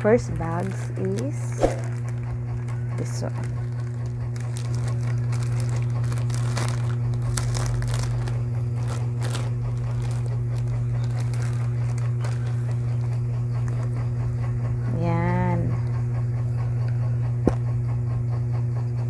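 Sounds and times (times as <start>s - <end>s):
low electrical hum: 0.0s - 19.0s
plastic packaging crinkling: 0.2s - 13.9s.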